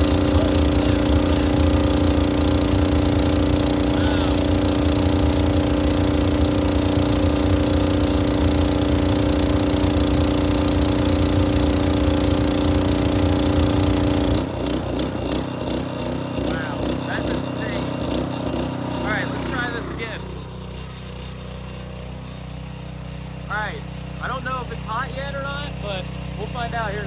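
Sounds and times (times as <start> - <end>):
pressure washer engine drone: 0.0 - 27.0.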